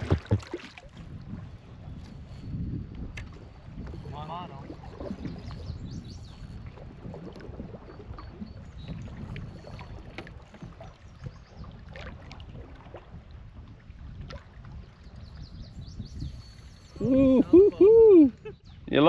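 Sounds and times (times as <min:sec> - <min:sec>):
paddle splashing and dripping: 0:00.0 - 0:15.5
wind rumble on microphone: 0:00.0 - 0:19.0.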